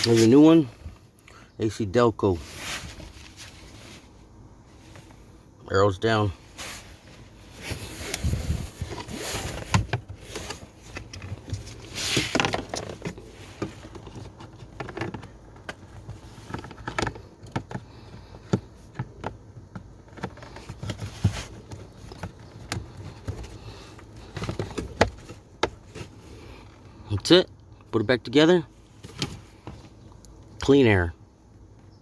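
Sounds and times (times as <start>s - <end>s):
rustling: 2.4s - 5.4s, 6.4s - 18.4s, 20.1s - 26.8s.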